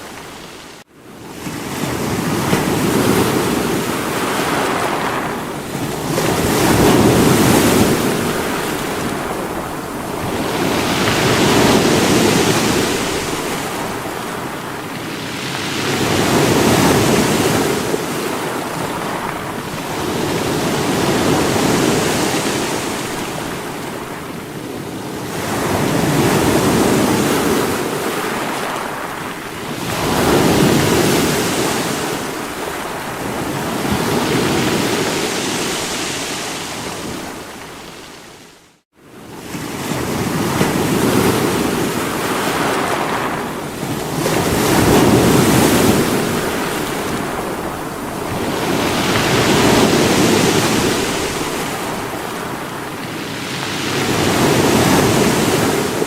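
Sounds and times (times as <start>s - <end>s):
sea waves breaking on rocks: 0.0s - 38.4s, 39.5s - 56.0s.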